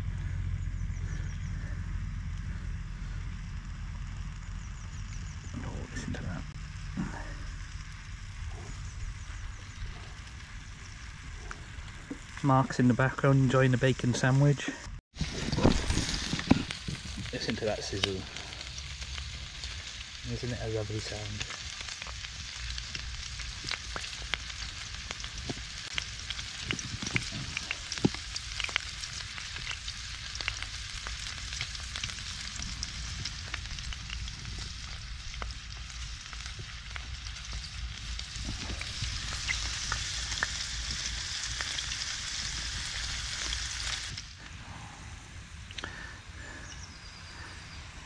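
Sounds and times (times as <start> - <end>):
prawns sizzling in hot oil: 15.2 - 44.4.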